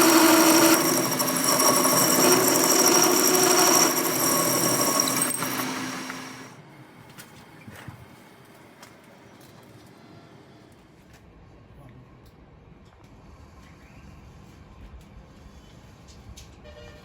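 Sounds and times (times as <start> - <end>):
power tool running: 0.0 - 6.5.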